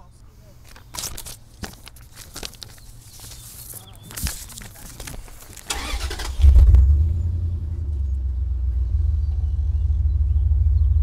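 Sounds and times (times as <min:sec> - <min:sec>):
car engine cranking and idling: 0:05.5 - 0:11.0.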